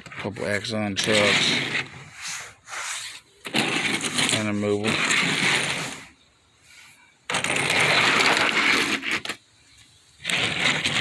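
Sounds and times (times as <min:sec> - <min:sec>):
toy trucks clinking and rattling: 0:00.0 - 0:02.0, 0:03.4 - 0:06.1, 0:07.3 - 0:11.0.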